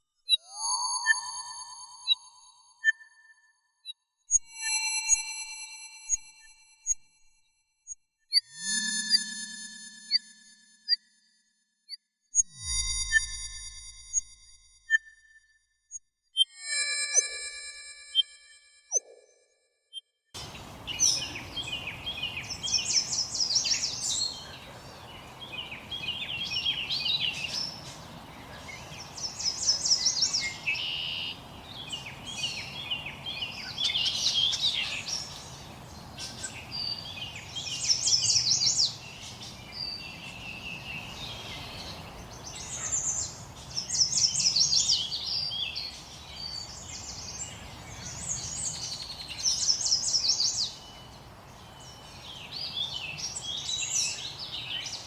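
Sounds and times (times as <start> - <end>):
soft background hiss: 20.4 - 44.7
songbird trilling: 20.4 - 55.0.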